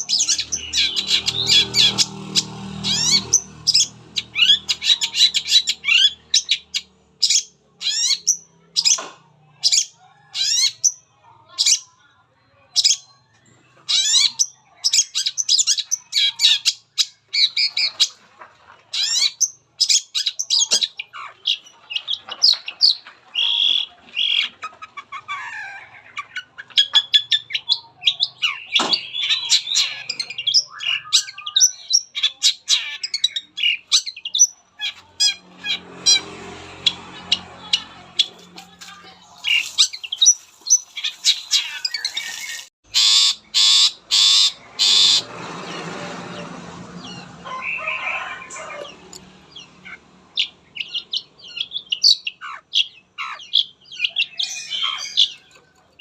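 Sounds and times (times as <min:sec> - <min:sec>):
bird squawking: 0:00.0 - 0:09.0, 0:18.9 - 0:46.4, 0:47.0 - 0:56.0
bird singing high chirps: 0:37.3 - 0:45.2, 0:48.9 - 0:56.0.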